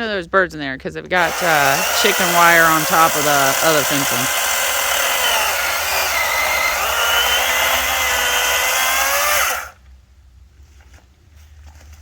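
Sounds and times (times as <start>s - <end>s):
electric chainsaw cutting wood: 1.2s - 9.8s.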